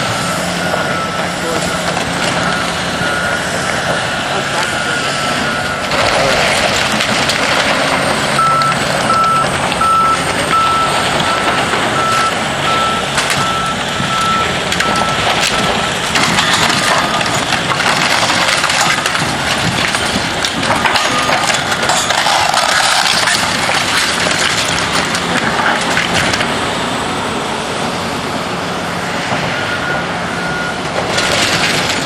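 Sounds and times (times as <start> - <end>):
machinery clattering: 5.8 - 26.5
backup alarm beeping: 8.3 - 16.7.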